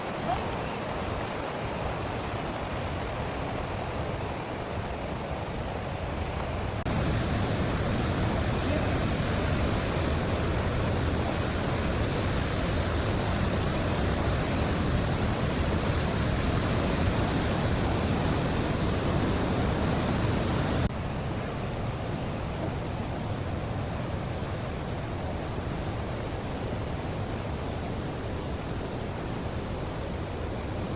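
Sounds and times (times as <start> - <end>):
waterfall rushing: 6.8 - 20.9.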